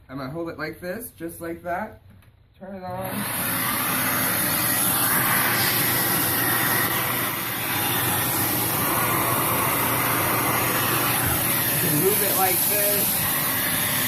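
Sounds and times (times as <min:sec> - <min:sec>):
vacuum cleaner running: 0:02.9 - 0:14.0.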